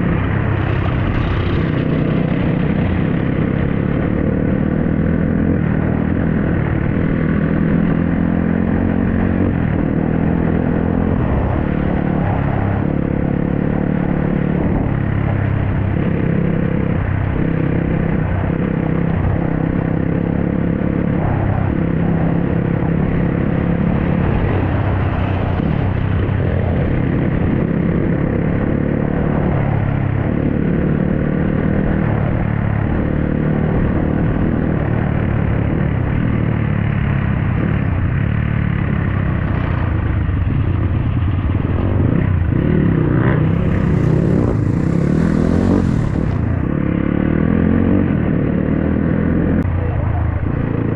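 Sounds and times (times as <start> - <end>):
dirt bike engine revving: 41.8 - 49.6.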